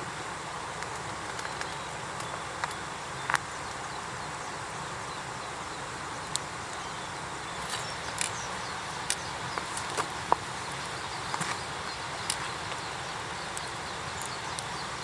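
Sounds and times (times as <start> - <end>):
background hiss: 0.0 - 15.0
campfire crackling: 0.0 - 15.0
fire pops and snaps: 0.8 - 3.8.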